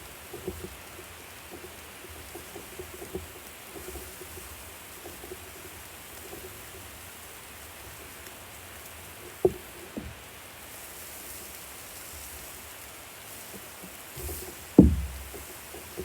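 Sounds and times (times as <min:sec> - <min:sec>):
food sizzling on a grill: 0:00.0 - 0:16.0
short knocks: 0:09.3 - 0:10.2, 0:14.2 - 0:16.0.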